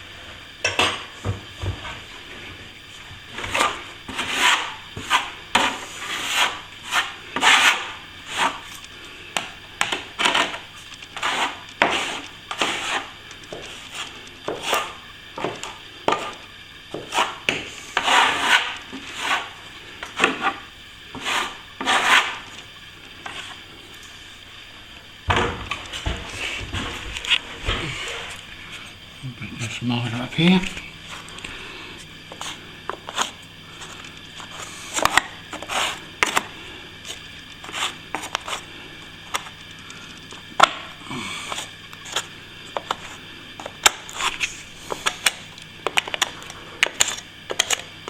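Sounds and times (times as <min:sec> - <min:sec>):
hand tool scraping plasterboard: 0:03.3 - 0:08.8, 0:09.8 - 0:22.6, 0:32.3 - 0:36.5, 0:37.1 - 0:38.7.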